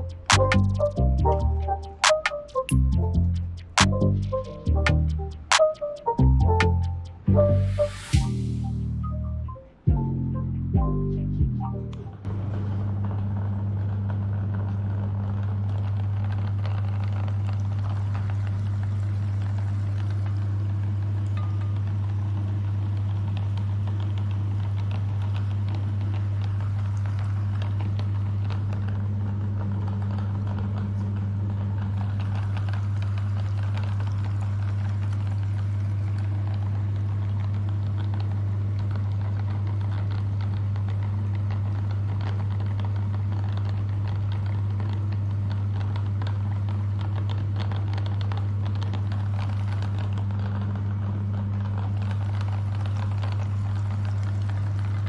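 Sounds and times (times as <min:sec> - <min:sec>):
grinding crackle: 0:00.0 - 0:07.4, 0:12.0 - 0:55.0
meat grinder motor humming: 0:22.9 - 0:55.0.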